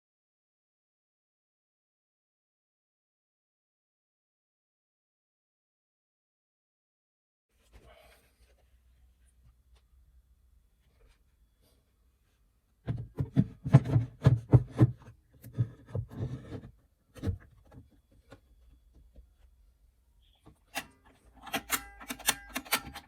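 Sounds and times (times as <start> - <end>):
knocks and thuds on wood: 12.8 - 16.3.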